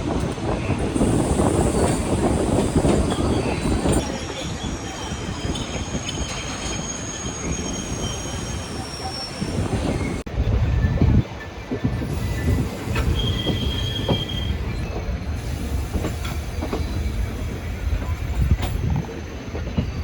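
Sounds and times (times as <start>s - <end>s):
rail clacks: 0.0s - 20.0s
train rumbling on rails: 0.0s - 20.0s
wheel squeal: 1.0s - 10.2s, 12.1s - 17.2s.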